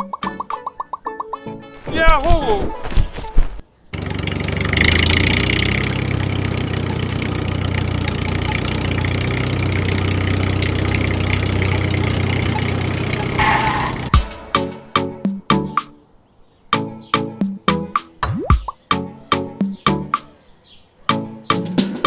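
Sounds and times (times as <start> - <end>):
tractor engine idling: 4.0 - 13.4.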